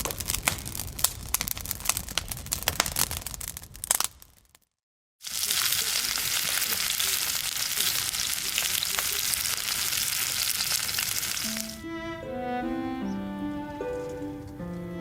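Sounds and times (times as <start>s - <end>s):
food sizzling in a hot pan: 5.2s - 11.8s
music: 11.5s - 15.0s.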